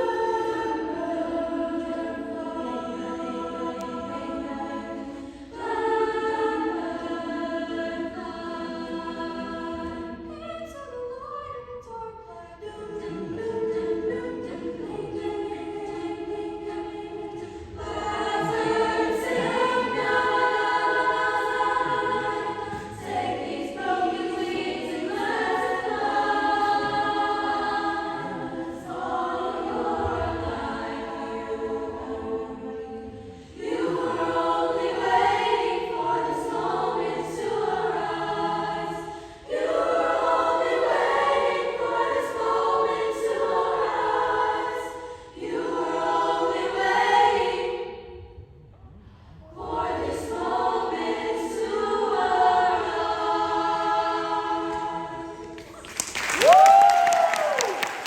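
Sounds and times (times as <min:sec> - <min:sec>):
choir singing: 0:00.0 - 0:58.0.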